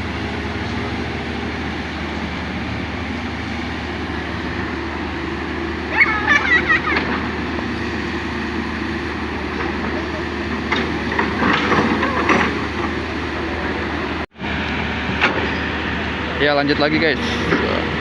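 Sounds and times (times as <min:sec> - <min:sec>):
excavator diesel engine running: 0:00.0 - 0:18.0
voices talking in background: 0:09.3 - 0:14.2.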